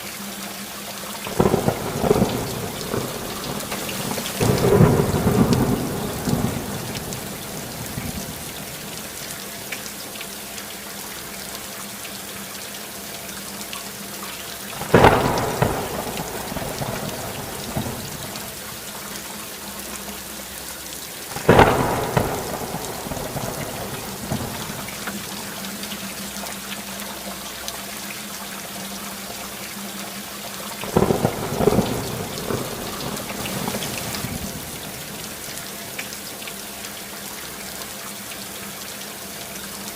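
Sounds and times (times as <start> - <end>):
steady rainfall: 0.0 - 39.9
thunderclaps: 1.3 - 9.1, 14.8 - 18.7, 21.4 - 25.5, 30.8 - 35.6.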